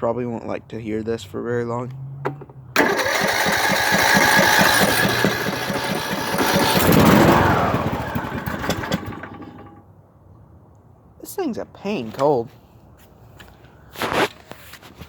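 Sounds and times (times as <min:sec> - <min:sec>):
mower engine running up: 0:02.8 - 0:09.8
starter cranking engine: 0:02.8 - 0:09.8.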